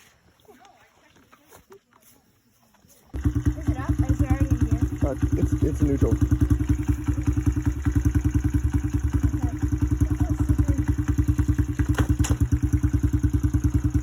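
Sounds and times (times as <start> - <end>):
dirt bike engine idling: 3.1 - 14.0.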